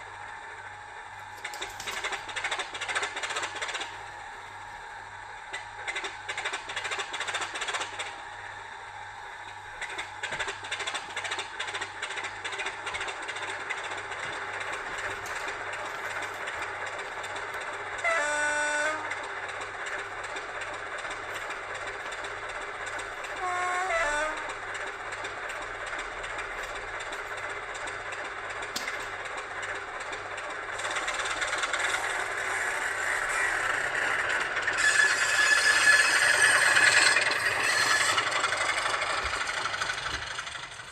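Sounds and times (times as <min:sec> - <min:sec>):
diesel locomotive engine: 0:00.0 - 0:40.9
locomotive horn blasts: 0:18.0 - 0:19.3, 0:23.2 - 0:24.9.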